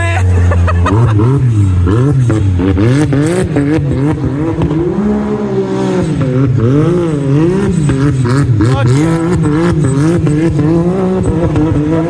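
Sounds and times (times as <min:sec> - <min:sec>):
car engine revving: 0:00.0 - 0:12.0
exhaust pops crackling: 0:00.0 - 0:12.0.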